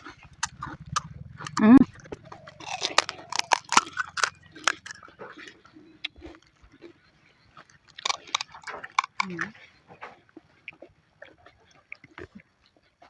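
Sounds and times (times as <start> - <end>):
crisp shells crunching when bitten: 0.4 - 5.6, 7.6 - 9.5.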